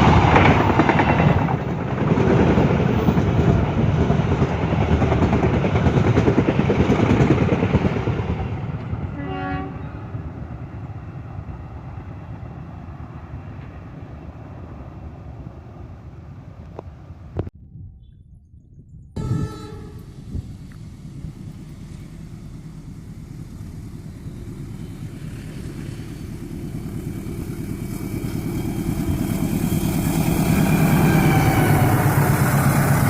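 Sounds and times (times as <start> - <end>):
diesel train rumbling past: 0.0 - 17.5, 19.2 - 33.0
train horn toot: 9.1 - 10.1, 19.2 - 20.2.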